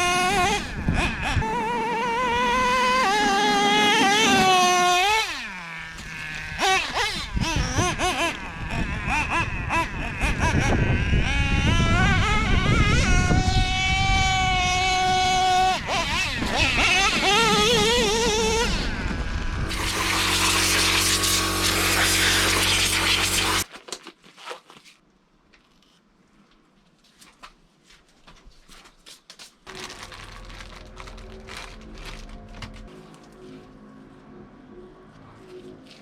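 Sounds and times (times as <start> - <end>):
model truck nitro engine revving: 0.0 - 23.7.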